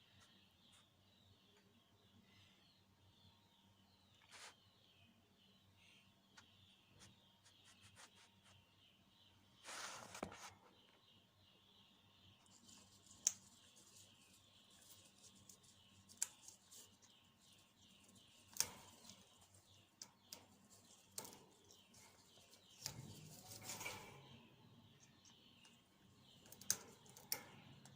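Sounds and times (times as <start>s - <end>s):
chirping in background: 0.0s - 27.9s.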